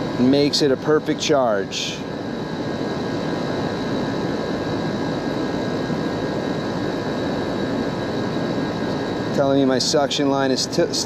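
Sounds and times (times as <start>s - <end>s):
air conditioning unit whirring: 0.0s - 11.0s
faint high hum: 0.0s - 11.0s.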